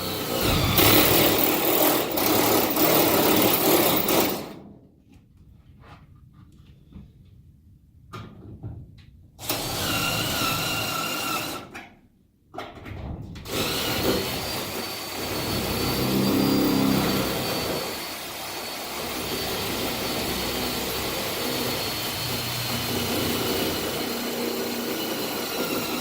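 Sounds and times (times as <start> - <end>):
power drill whining: 0.0 - 4.5, 9.4 - 11.8, 13.5 - 26.0.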